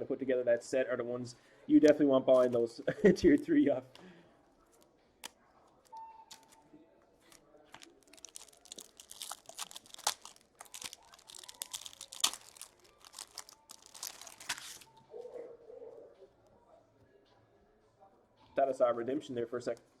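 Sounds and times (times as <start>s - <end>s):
foil packs tearing and crinkling: 7.8s - 14.9s.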